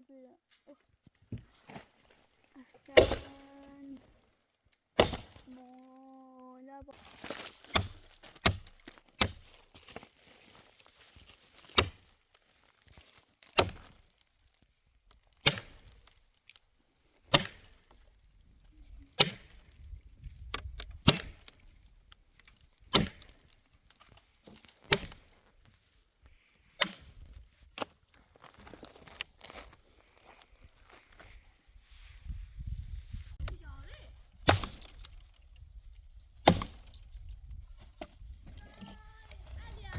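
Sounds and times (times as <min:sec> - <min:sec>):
axe chopping wood: 0:03.0 - 0:03.5, 0:05.0 - 0:05.5, 0:07.2 - 0:09.6, 0:11.6 - 0:12.1, 0:13.5 - 0:14.0, 0:15.4 - 0:16.2, 0:17.3 - 0:17.9, 0:19.1 - 0:19.8, 0:20.5 - 0:21.6, 0:22.9 - 0:25.3, 0:26.8 - 0:27.2, 0:34.4 - 0:35.2, 0:36.4 - 0:37.0.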